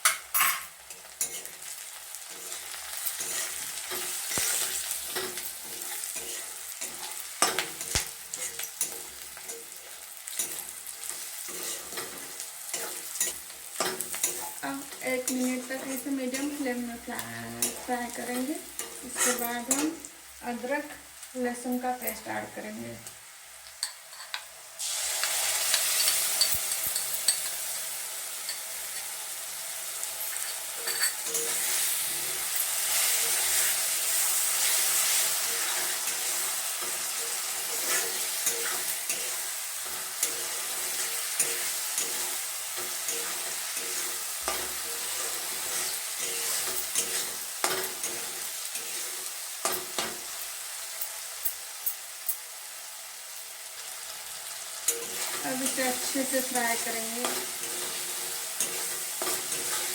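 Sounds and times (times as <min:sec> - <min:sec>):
onions sizzling in hot oil: 0:00.0 - 0:59.9
spatula scraping a pan: 0:00.4 - 0:19.8, 0:30.3 - 0:50.2, 0:54.9 - 0:59.9.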